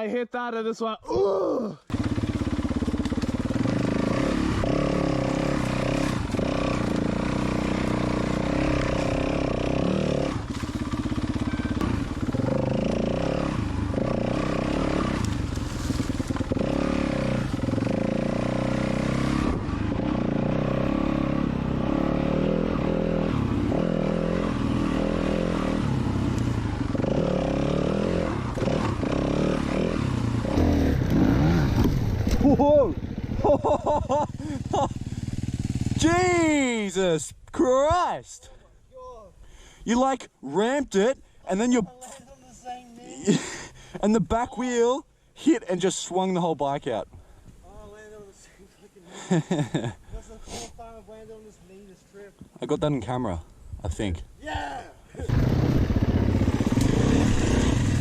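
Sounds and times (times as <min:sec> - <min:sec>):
dirt bike engine revving: 0:01.9 - 0:36.9, 0:55.2 - 0:58.0.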